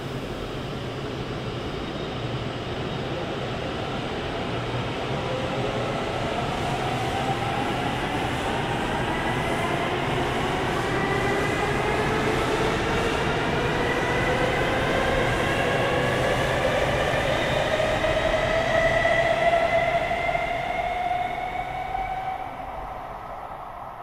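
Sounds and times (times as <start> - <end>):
train running noise: 0.0 - 23.4.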